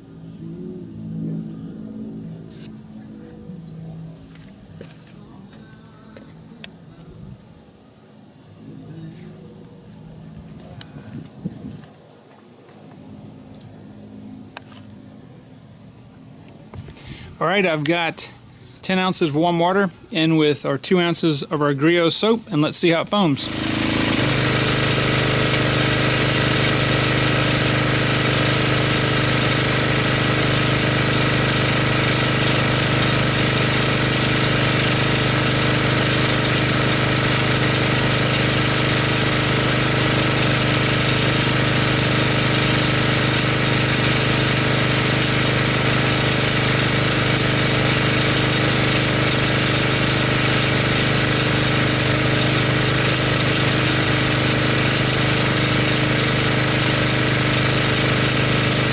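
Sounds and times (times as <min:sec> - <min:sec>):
pressure washer motor hum: 0:00.0 - 0:06.8, 0:16.7 - 0:58.9
hiss of foam spray: 0:43.2 - 0:58.0.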